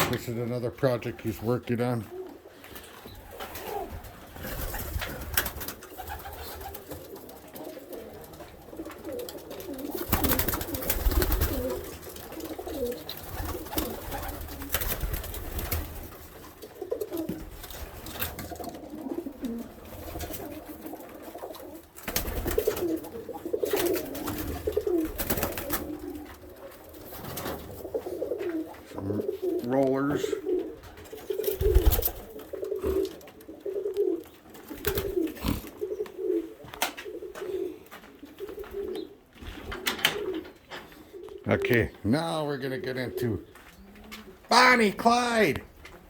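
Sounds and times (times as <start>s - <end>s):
pigeons cooing: 0.0s - 42.0s, 42.7s - 44.5s.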